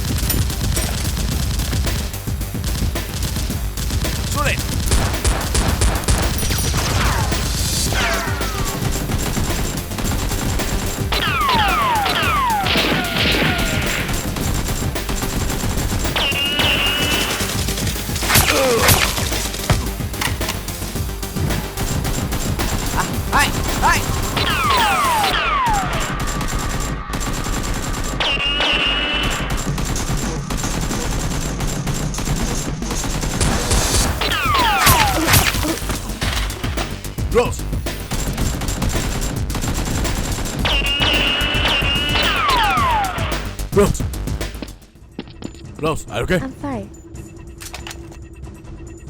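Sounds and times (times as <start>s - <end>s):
background music: 0.0s - 49.0s
gunfire sound effects: 2.7s - 20.8s, 21.4s - 37.5s, 39.0s - 44.0s
falling whistles: 16.2s - 17.4s, 40.6s - 43.5s.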